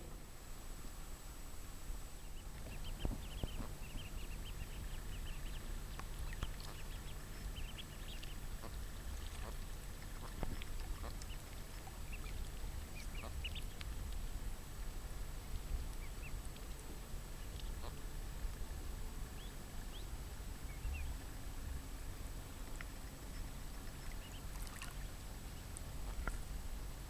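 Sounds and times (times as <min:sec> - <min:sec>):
steady low rumble: 0:00.0 - 0:27.0
birds chirping: 0:02.2 - 0:10.4, 0:11.0 - 0:13.8.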